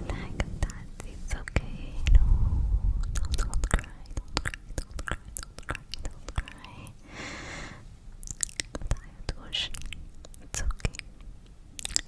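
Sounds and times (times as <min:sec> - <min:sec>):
low handling rumble: 0:00.0 - 0:07.0
short breathy hiss: 0:06.9 - 0:08.0.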